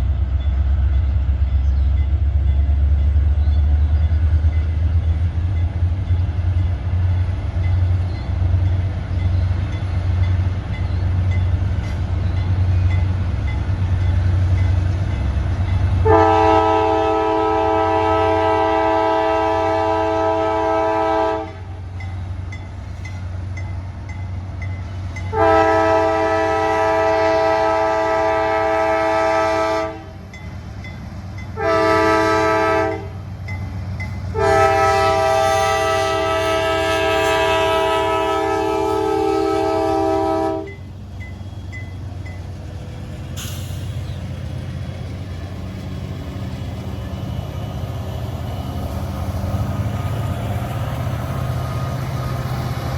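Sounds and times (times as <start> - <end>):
diesel locomotive rumbling: 0.0 - 52.9
train air horn blasts: 16.0 - 21.8, 25.3 - 30.2, 31.6 - 33.2, 34.3 - 40.8.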